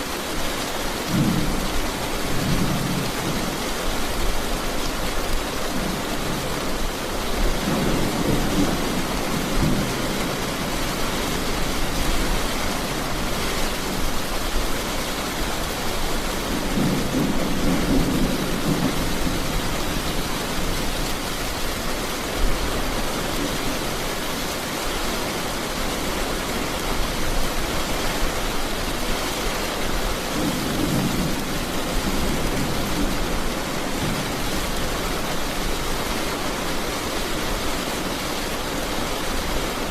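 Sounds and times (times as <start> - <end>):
heavy rain falling: 0.0 - 39.9
thunder rumbling: 7.3 - 14.6, 15.4 - 24.0.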